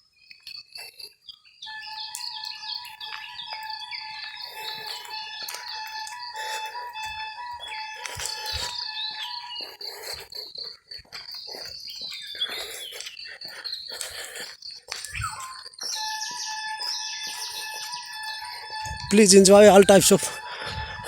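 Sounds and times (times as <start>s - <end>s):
birds chirping and calling: 11.1s - 21.0s.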